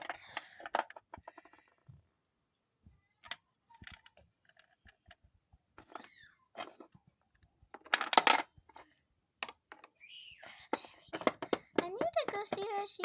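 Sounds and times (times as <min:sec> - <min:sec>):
faint clicks and taps: 0:10.6 - 0:13.0.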